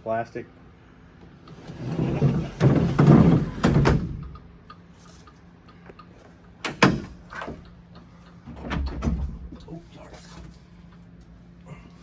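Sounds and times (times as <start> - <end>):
wooden crate parts scraping: 1.5 - 4.1.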